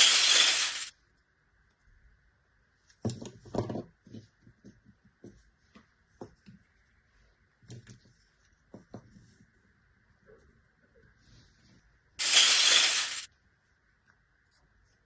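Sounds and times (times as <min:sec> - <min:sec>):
plastic toy pieces clicking: 0:00.0 - 0:00.9.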